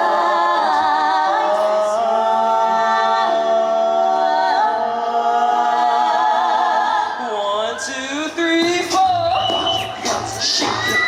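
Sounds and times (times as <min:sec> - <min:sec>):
a cappella group singing chords: 0:00.0 - 0:11.0.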